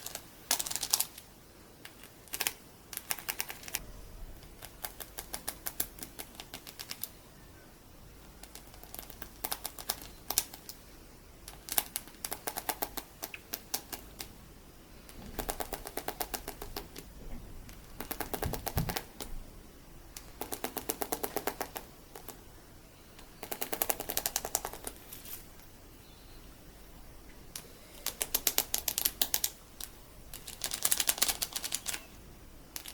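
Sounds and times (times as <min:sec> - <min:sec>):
beads clicking and crackling: 0:00.0 - 0:03.8, 0:27.5 - 0:32.1.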